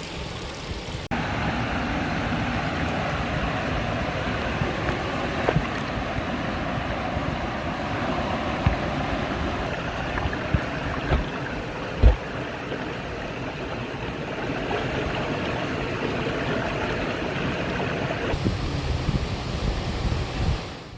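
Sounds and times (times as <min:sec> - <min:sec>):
stream rushing over rocks: 0:00.0 - 0:18.4
dull low thumps: 0:10.0 - 0:12.4.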